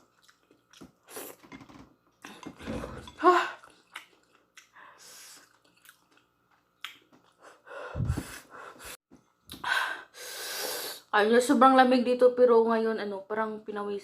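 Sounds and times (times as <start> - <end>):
person chewing noodles: 0.0 - 1.4, 2.2 - 7.6
person breathing: 7.4 - 9.0, 9.6 - 11.1.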